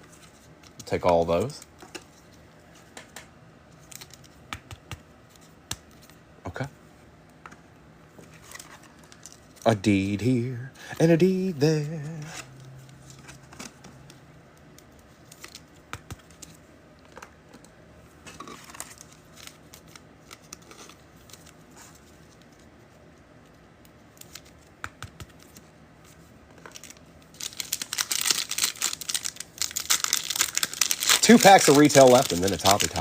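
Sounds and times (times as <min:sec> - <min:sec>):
trading cards rustling: 0:08.2 - 0:22.7, 0:24.2 - 0:33.0
foil wrapper crinkling and tearing: 0:26.7 - 0:33.0.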